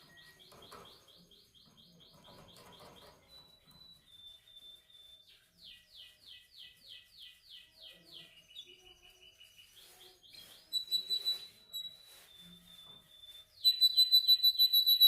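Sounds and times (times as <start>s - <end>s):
canary singing: 0.0s - 12.1s, 13.5s - 15.0s.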